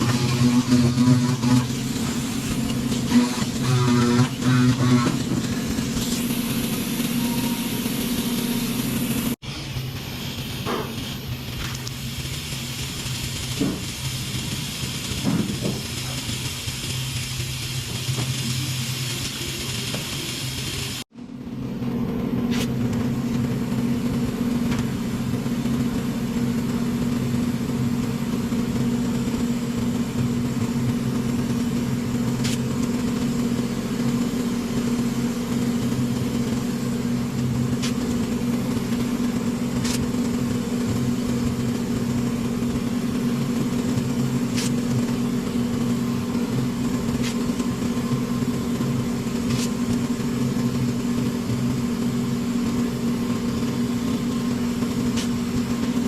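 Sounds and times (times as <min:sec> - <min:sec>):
motor humming: 0:00.0 - 0:21.0.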